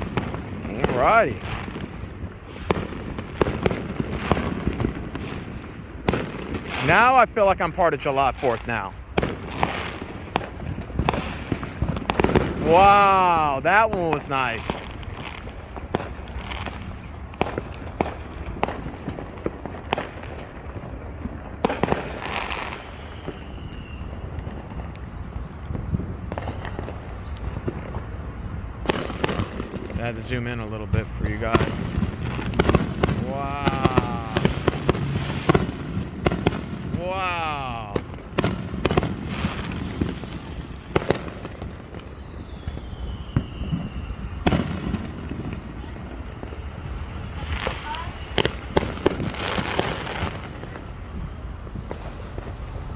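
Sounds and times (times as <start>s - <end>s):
fireworks crackling: 0.0s - 52.9s
fireworks pops and bangs: 0.0s - 52.9s
falling whistle: 23.0s - 24.4s, 42.0s - 48.9s.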